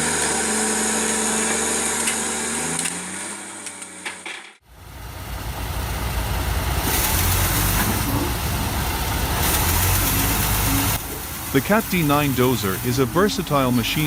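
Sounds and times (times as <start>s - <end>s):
heavy diesel engine rumbling: 4.6s - 14.0s.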